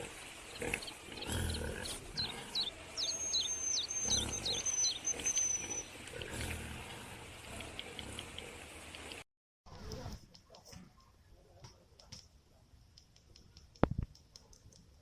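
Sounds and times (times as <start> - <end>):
animal grunting calls: 0.0 - 8.8
bird chirping and whistling: 2.2 - 5.9.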